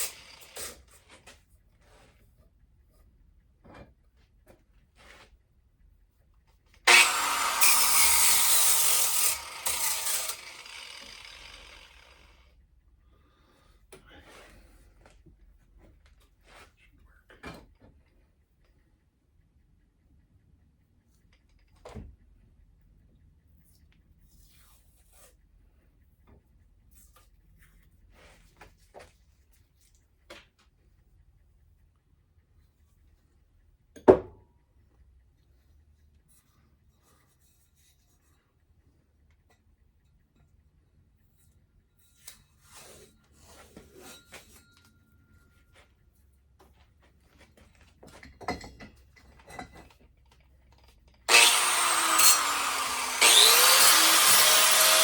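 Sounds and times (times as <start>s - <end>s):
power tool grinding: 0.0s - 0.8s, 6.9s - 12.4s, 51.3s - 55.0s.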